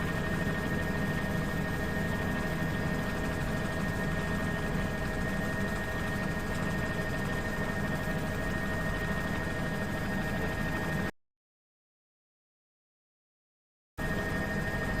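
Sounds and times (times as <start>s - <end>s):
constant high whine: 0.0s - 11.1s, 14.0s - 15.0s.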